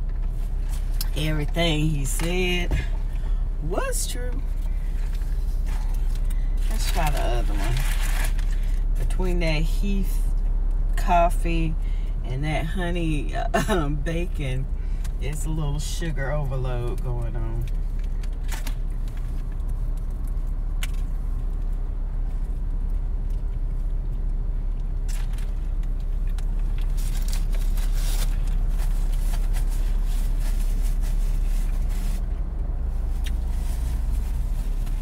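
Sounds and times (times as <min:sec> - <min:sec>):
car engine idling: 0:00.0 - 0:35.0
paper wrapper crinkling: 0:05.0 - 0:08.6, 0:25.1 - 0:32.2.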